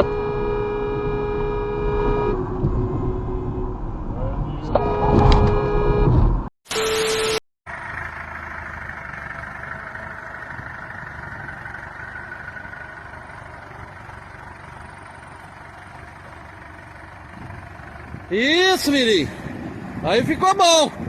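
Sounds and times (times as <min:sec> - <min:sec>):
vehicle engine running: 0:07.7 - 0:18.6.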